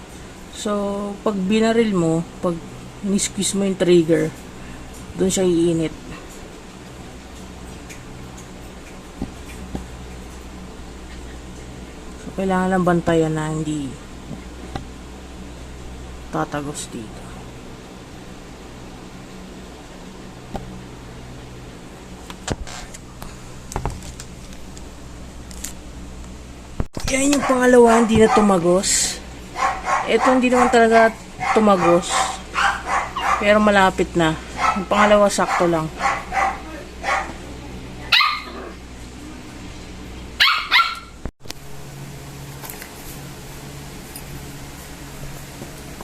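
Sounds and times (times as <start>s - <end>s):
low steady hum: 0.0s - 46.0s
dog barking: 27.3s - 28.6s, 29.6s - 33.6s, 34.6s - 37.4s, 38.1s - 38.7s, 40.4s - 41.2s.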